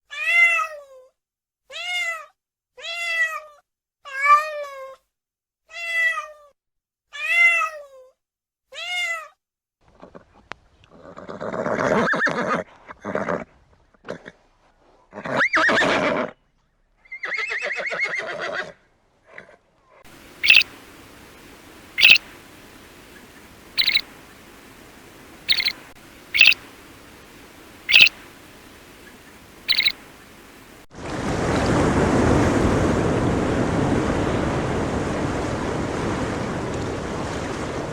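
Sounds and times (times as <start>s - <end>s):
steady hiss: 20.1s - 30.9s
rough animal calls: 20.2s - 30.7s
rising and falling animal calls: 20.2s - 30.8s
sharp high animal calls: 20.2s - 30.8s.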